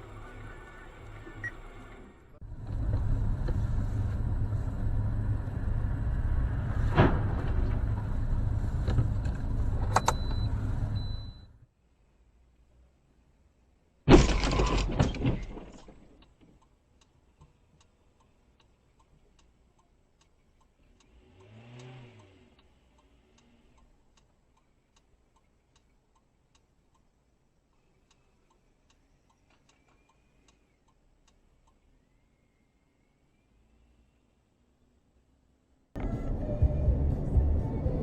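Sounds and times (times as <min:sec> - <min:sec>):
car crash bang with crunching: 0:14.1 - 0:16.0
faint regular ticking: 0:16.2 - 0:33.3
low rising and falling sound: 0:36.0 - 0:38.0.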